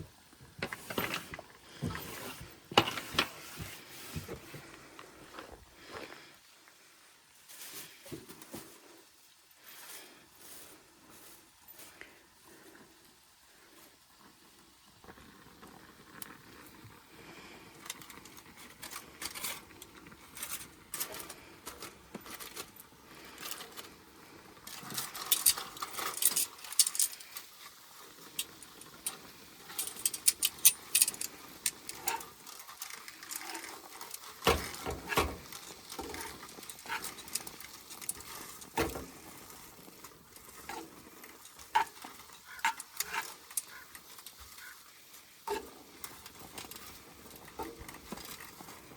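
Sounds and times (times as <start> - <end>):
cookware and utensils clinking: 28.2 - 44.8.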